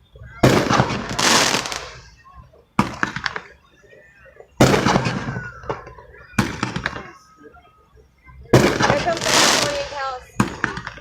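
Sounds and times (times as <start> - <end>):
firework bangs and crackling: 0.2 - 3.6, 4.5 - 7.2, 8.5 - 11.0.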